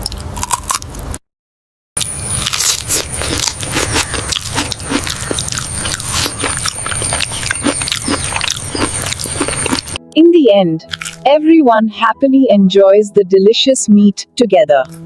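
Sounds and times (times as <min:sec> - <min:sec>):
people chewing and crunching: 0:00.0 - 0:01.0, 0:02.0 - 0:10.0, 0:10.9 - 0:11.2.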